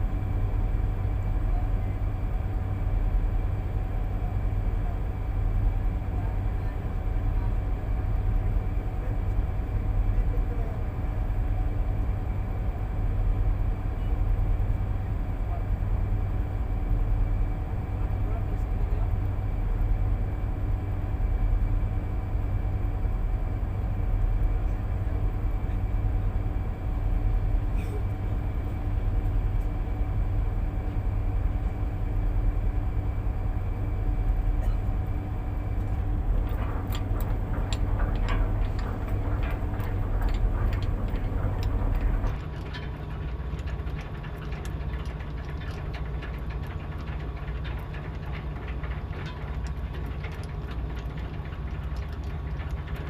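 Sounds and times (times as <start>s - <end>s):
heavy boat engine drone: 0.0s - 53.0s
clicks and rattles: 35.8s - 53.0s.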